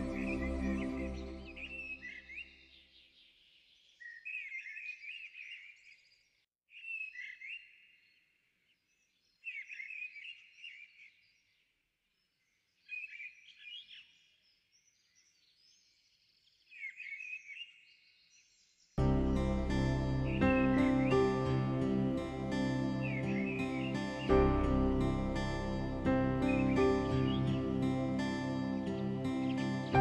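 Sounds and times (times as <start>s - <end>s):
bird chirps and warbles: 0.0s - 30.0s.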